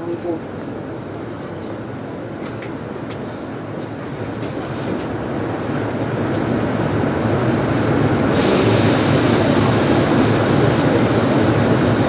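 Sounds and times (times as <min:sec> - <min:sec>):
train equipment hum and rumble: 0:00.0 - 0:12.0
hiss: 0:08.3 - 0:12.0.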